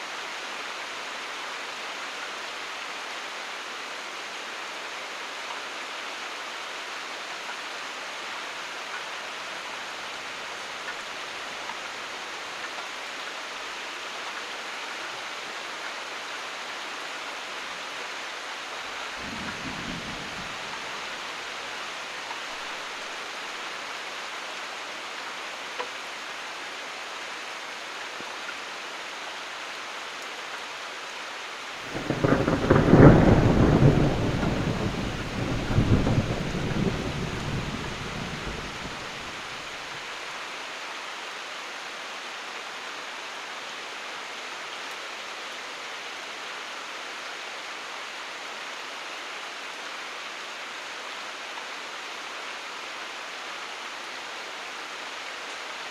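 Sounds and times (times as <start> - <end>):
steady rain: 0.0 - 55.9
thunder rumbling: 31.9 - 39.5.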